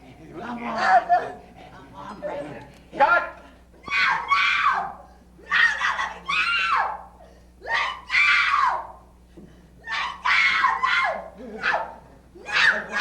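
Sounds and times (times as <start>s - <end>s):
woman screaming: 3.8s - 7.0s, 7.6s - 9.0s, 9.8s - 13.0s.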